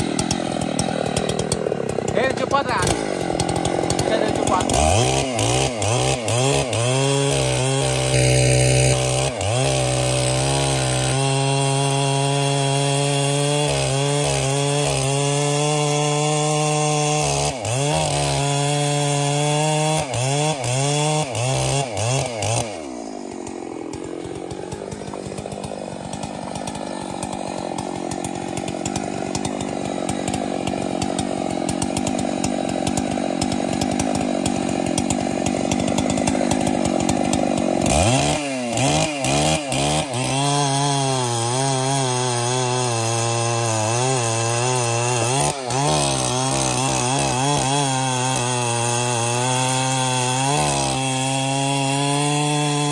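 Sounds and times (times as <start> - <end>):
chainsaw engine running: 0.0 - 52.9.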